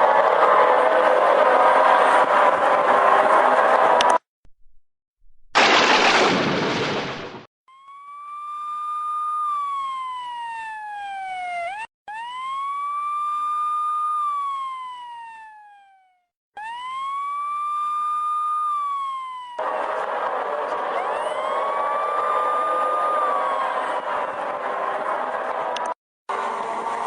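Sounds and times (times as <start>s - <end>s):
road and engine noise: 0.0s - 4.3s, 16.6s - 27.0s
police car siren wailing: 7.7s - 27.0s.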